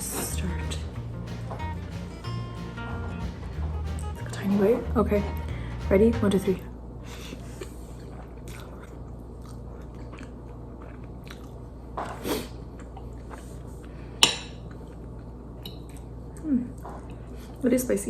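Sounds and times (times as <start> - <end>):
steady low hum: 0.0 - 17.8
quiet chewing: 7.4 - 17.6.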